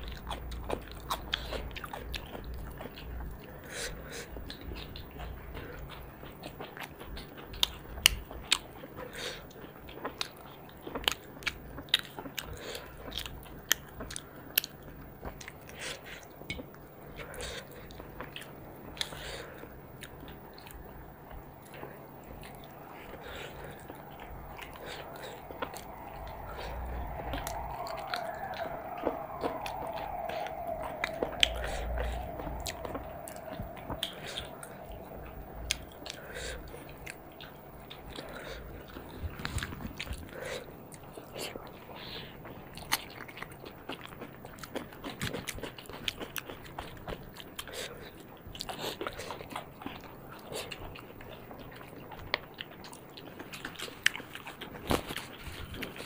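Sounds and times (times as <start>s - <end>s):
people chewing with mouth clicks: 0.0s - 56.0s
background tone rising and falling: 20.2s - 39.3s.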